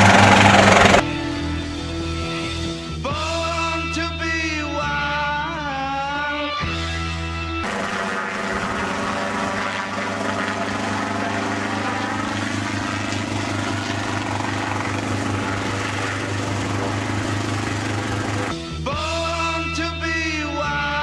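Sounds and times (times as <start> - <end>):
helicopter engine and rotor: 0.0 - 2.8, 7.6 - 18.6.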